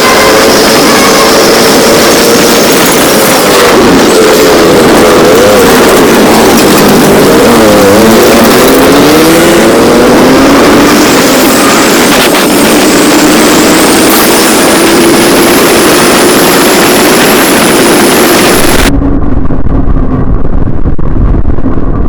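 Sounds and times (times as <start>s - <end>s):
motorcycle engine running: 0.0s - 22.0s
rushing road noise: 0.0s - 22.0s.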